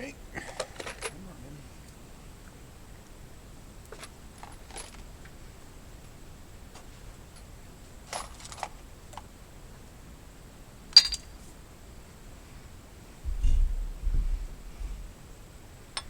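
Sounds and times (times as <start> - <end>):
light metallic clinks: 11.0 - 11.4
low thud: 13.2 - 15.2.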